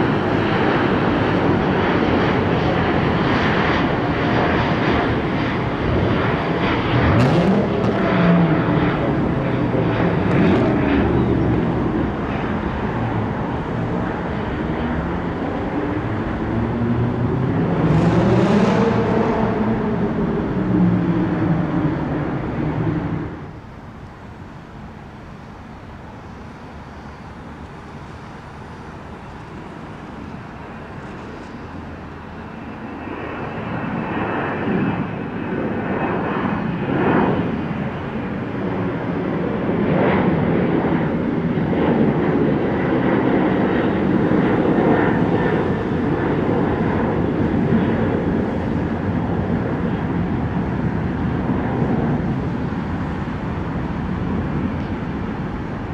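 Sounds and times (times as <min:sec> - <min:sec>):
jet engine roar: 0:00.0 - 0:55.9
faint high whine: 0:21.9 - 0:35.4.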